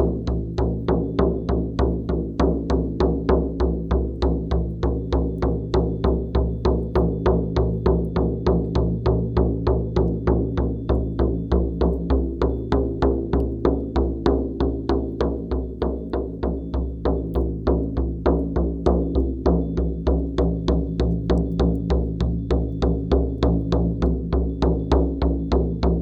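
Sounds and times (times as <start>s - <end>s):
frame drum beating: 0.0s - 26.0s.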